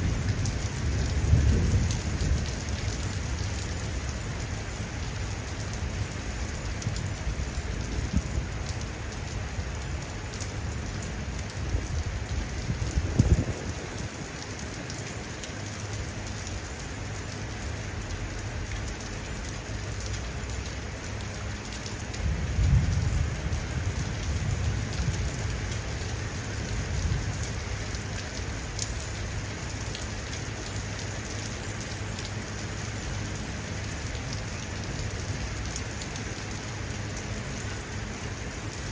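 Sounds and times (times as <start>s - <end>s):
thunder rumbling: 0.0s - 3.5s, 12.4s - 14.1s, 22.2s - 26.2s
steady rain falling: 0.0s - 38.9s.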